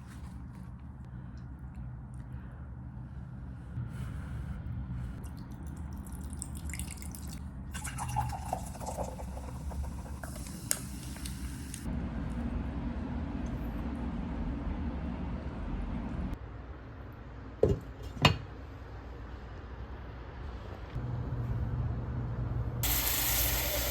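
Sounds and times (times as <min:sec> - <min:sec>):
water running in sink: 0:06.0 - 0:11.9, 0:22.8 - 0:23.9.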